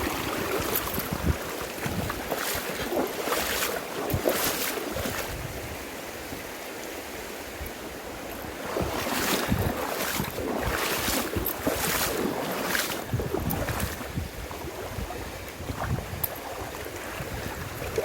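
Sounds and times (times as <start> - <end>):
loud water splashes: 0.0 - 5.6, 8.4 - 18.0
river water sloshing: 0.0 - 18.0.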